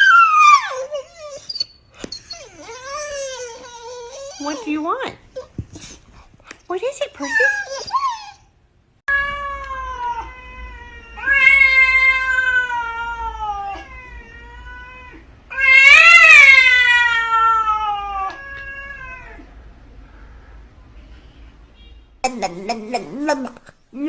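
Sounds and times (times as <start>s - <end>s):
cat yowling meows: 9.1s - 19.5s.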